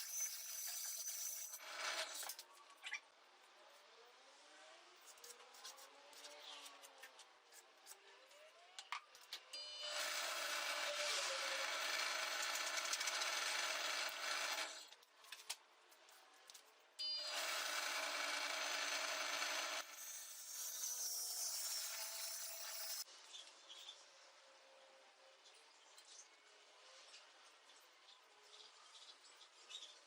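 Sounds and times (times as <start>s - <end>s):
power tool cutting wood: 9.6s - 14.9s, 17.0s - 23.1s.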